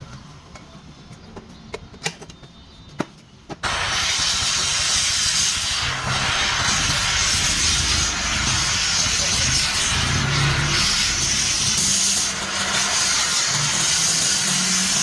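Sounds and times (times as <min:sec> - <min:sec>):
welding device hissing: 0:03.6 - 0:15.0.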